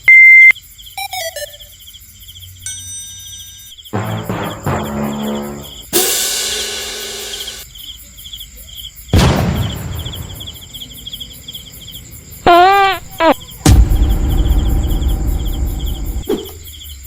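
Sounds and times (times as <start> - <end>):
cricket-like chirping trills: 0.0 - 17.0
loud sudden hit: 4.0 - 7.6, 13.0 - 16.2
loud wobbling pitched tone: 12.5 - 16.2.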